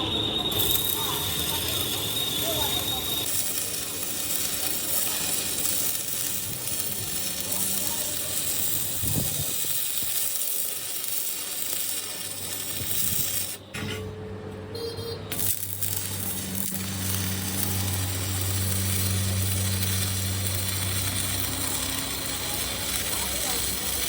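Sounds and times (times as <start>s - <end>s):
steady hiss: 1.9s - 13.6s.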